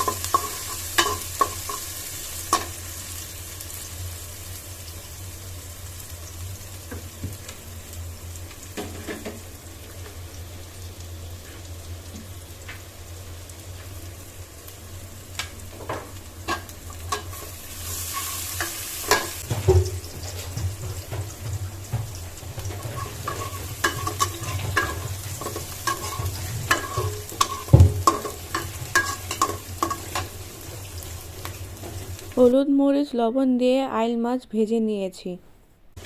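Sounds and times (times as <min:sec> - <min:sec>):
spatula scraping a pan: 0:00.0 - 0:02.8, 0:16.5 - 0:21.3, 0:21.9 - 0:30.4
food sizzling in hot oil: 0:00.0 - 0:32.5.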